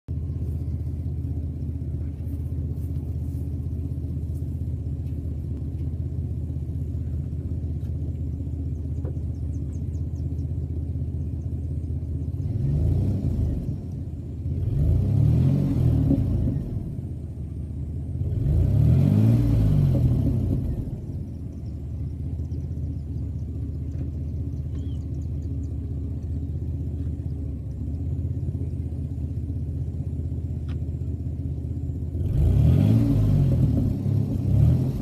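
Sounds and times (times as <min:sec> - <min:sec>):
engine idling with exhaust rumble: 0:00.0 - 0:35.0
engine revving: 0:11.0 - 0:30.8, 0:32.0 - 0:35.0.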